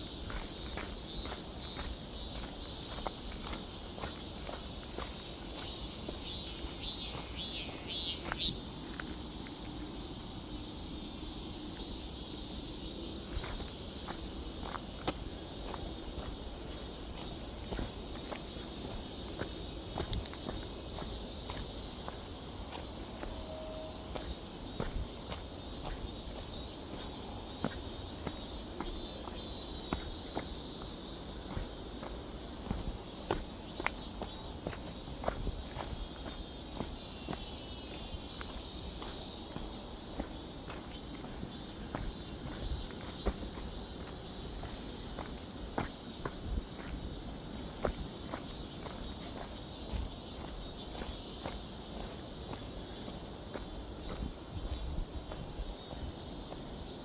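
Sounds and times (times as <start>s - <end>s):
footsteps crunching on leaf litter: 0.0s - 10.2s, 13.2s - 57.0s
high insect trilling: 0.0s - 22.5s
insect drone: 0.0s - 57.0s.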